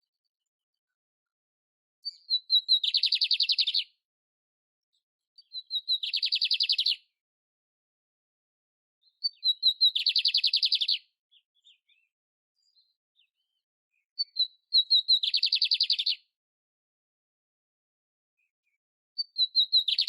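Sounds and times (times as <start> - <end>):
canary singing trills: 2.0 - 4.0, 5.4 - 7.1, 9.0 - 16.3, 19.2 - 20.0
soft bird twitters: 2.0 - 4.0, 4.9 - 7.1, 9.0 - 16.3, 18.4 - 20.0.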